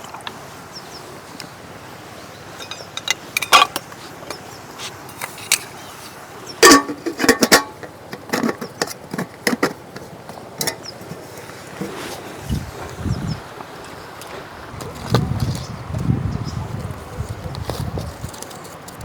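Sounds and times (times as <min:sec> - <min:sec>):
river water rushing: 0:00.0 - 0:14.8
hard objects clattering: 0:02.5 - 0:05.8, 0:06.6 - 0:12.2.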